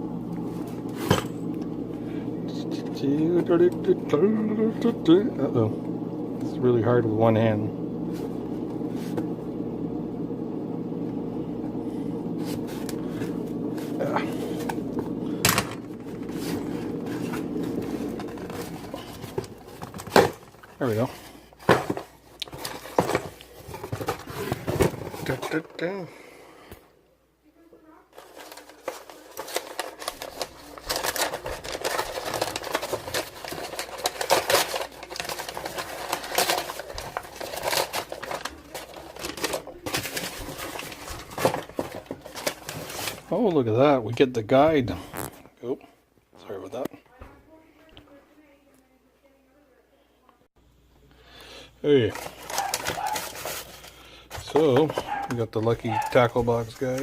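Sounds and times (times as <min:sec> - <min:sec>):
low mechanical rumble with hum: 0:00.0 - 0:25.5
cardboard box rustling: 0:16.1 - 0:25.6, 0:28.2 - 0:43.3, 0:52.1 - 0:57.0.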